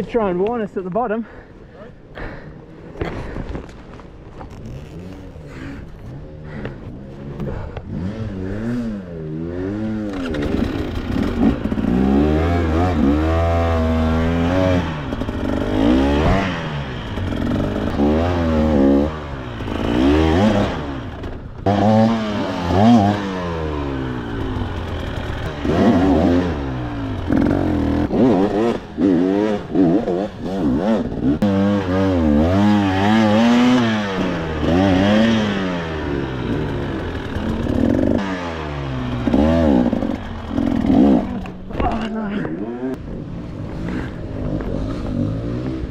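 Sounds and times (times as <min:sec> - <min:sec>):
dirt bike engine revving: 0:04.5 - 0:45.9
clatter: 0:10.0 - 0:12.0, 0:24.1 - 0:29.1, 0:36.4 - 0:38.4.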